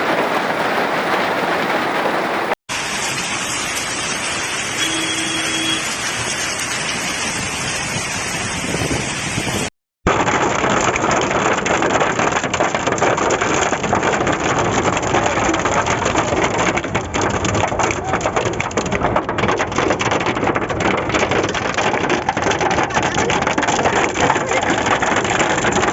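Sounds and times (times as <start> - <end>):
hailstones pelting down: 0.0 - 4.7, 10.1 - 25.9
heavy rain: 0.0 - 25.9.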